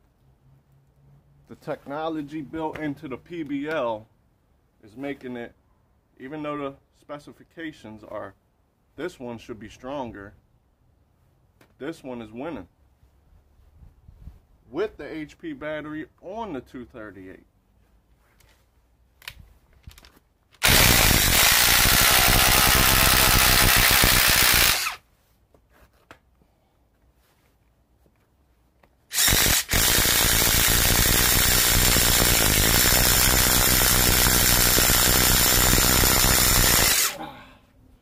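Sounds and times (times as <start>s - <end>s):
impact driver boring into wood: 20.6s - 25.0s, 29.1s - 37.2s.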